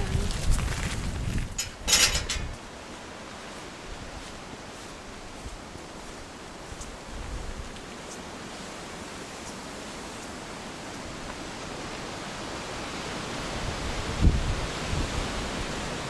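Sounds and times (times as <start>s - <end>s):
wind buffets on microphone: 0.0s - 2.6s, 6.7s - 7.8s, 13.4s - 16.0s
steady rushing outdoor noise: 0.0s - 16.0s.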